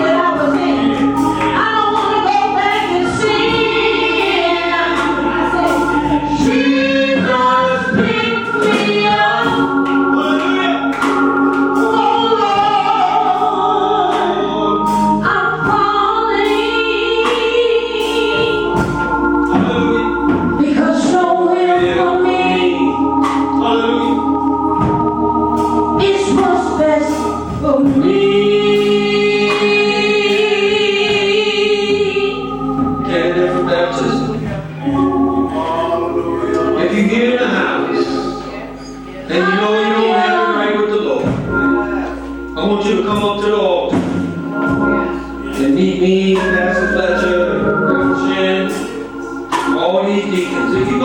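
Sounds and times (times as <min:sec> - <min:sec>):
gospel choir singing: 0:00.0 - 0:51.0.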